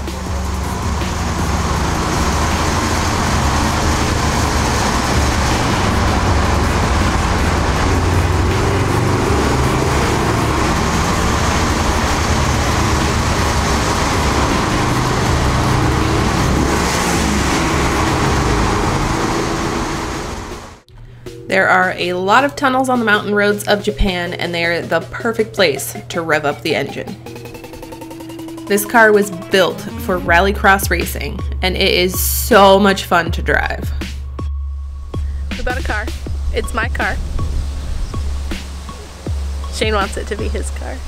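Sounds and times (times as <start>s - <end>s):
car engine revving: 0.0s - 20.9s, 27.1s - 41.0s
road and tyre noise: 0.0s - 20.9s, 33.7s - 41.0s.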